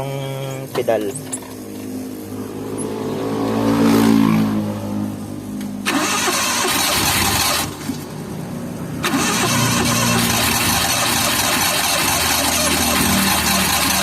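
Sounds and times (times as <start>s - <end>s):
engine revving: 1.8s - 14.0s
engine cranking on starter: 5.8s - 8.0s, 9.0s - 14.0s.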